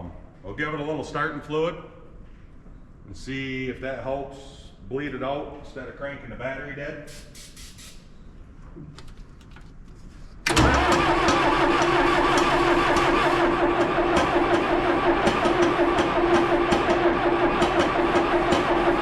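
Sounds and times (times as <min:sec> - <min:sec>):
diesel engine running: 0:10.5 - 0:19.0
starter cranking: 0:10.5 - 0:19.0.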